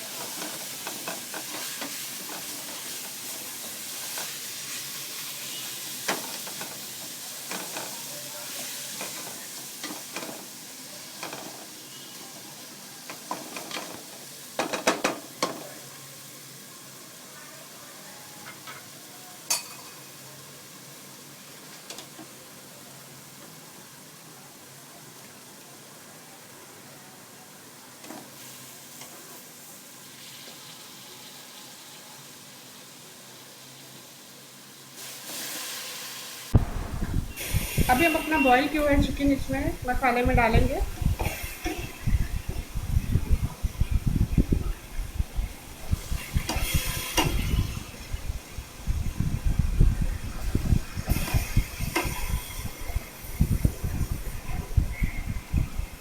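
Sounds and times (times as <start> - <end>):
masala sizzling in oil: 0.0 - 56.0
spoon scraping and knocking pan: 0.2 - 10.5, 13.1 - 15.7, 40.8 - 42.8, 45.9 - 47.8, 51.0 - 54.2.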